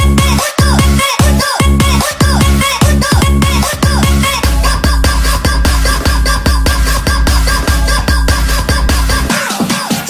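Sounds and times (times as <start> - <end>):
fast dance beat: 0.0 - 10.0
heavy bass: 0.0 - 10.0.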